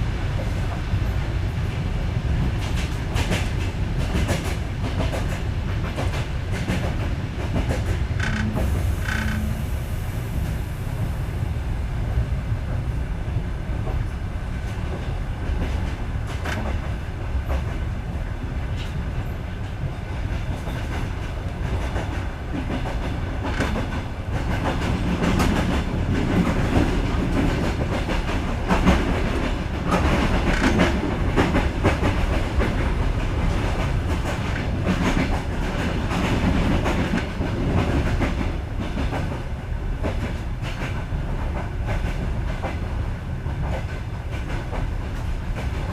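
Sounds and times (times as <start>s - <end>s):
train carriage rumble: 0.0s - 45.9s.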